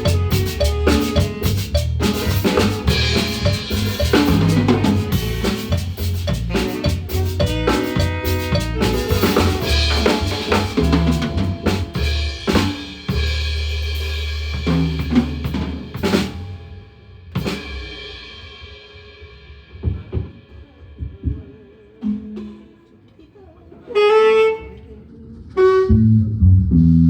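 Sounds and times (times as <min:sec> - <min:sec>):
drum kit hits and cymbal crashes: 0:00.0 - 0:21.4
held low bass note: 0:25.8 - 0:27.0.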